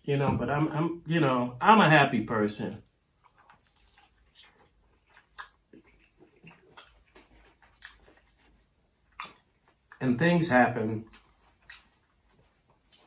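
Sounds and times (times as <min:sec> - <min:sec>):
person chewing crispy chicken: 0:03.0 - 0:10.0, 0:10.9 - 0:13.0.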